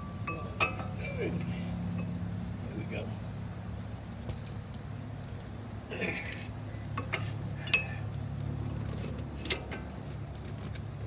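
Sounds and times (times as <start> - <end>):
light metallic clinks and clicks: 0.0 - 2.2, 6.3 - 8.1, 8.8 - 10.0
steady low hum: 0.0 - 11.0.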